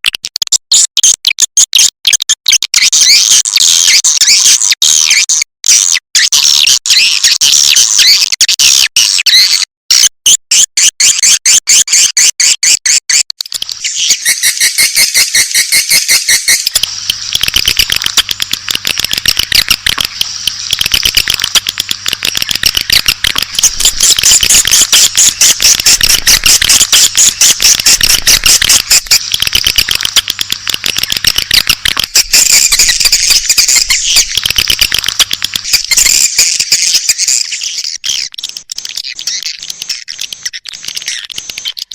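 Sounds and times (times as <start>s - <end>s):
bird chirps and twittering: 11.0s - 41.9s.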